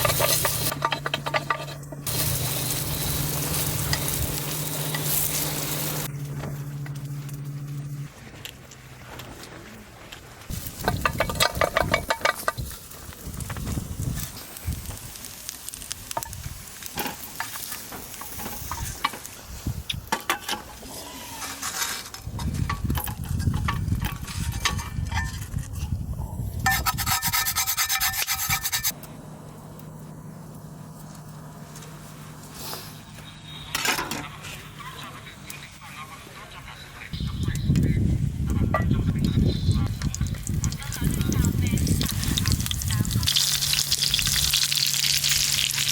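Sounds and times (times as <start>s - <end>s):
rasping scraping strokes: 20.8s - 22.2s, 26.6s - 29.0s.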